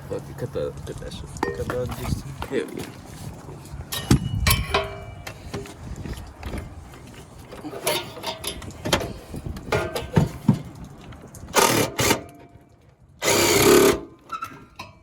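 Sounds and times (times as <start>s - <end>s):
metal knocks and clinks: 1.4s - 2.2s, 3.8s - 6.7s, 7.5s - 12.7s.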